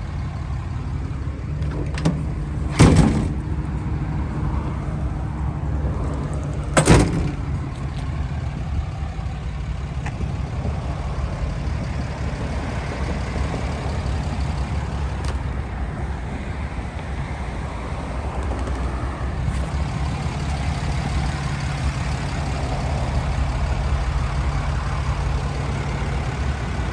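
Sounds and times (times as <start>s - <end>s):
diesel engine idling: 0.0s - 4.0s, 6.8s - 15.7s, 19.4s - 26.9s
loud thump: 1.7s - 3.7s, 6.8s - 15.6s.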